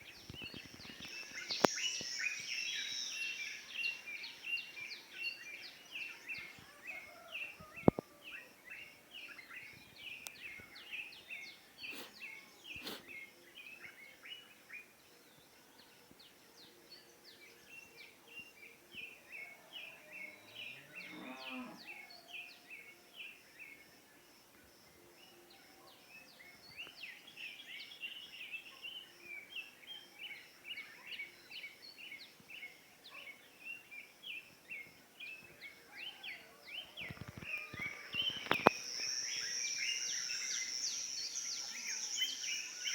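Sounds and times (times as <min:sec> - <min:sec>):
birds chirping: 0:00.0 - 0:08.0, 0:34.8 - 0:42.9
cow mooing: 0:21.0 - 0:21.8.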